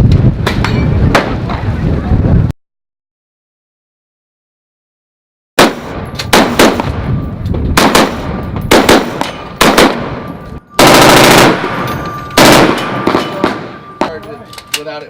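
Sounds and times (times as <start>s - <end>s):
automatic gunfire burst: 5.6s - 6.9s, 7.8s - 10.1s, 10.8s - 11.8s, 12.4s - 13.6s
single gunshots: 5.6s - 7.0s, 7.8s - 13.8s.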